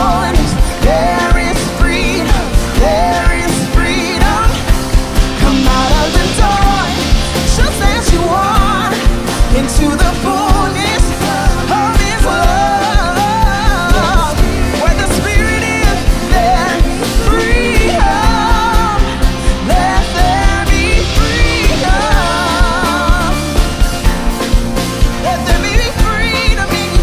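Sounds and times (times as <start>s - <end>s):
drum beat: 0.0s - 27.0s
person singing: 0.0s - 27.0s
rock band playing: 0.0s - 27.0s.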